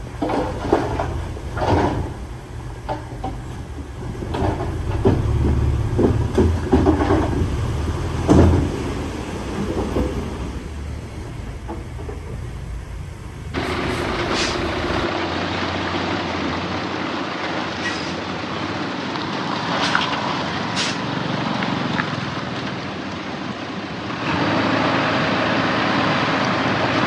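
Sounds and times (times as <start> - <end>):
louder engine: 0.0 - 17.6, 23.7 - 27.0
diesel engine running: 0.0 - 27.0
metallic clanks and scrapes: 0.1 - 10.6, 11.2 - 15.1.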